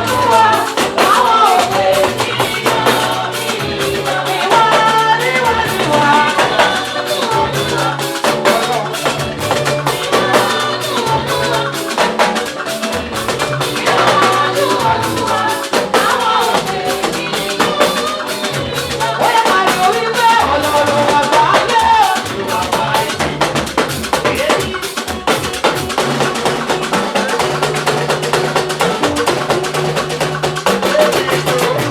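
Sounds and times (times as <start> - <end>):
bass line: 0.0 - 11.8, 27.4 - 31.9
drum kit beat: 0.0 - 31.9
shaker: 0.0 - 31.9
voices singing: 0.0 - 31.9.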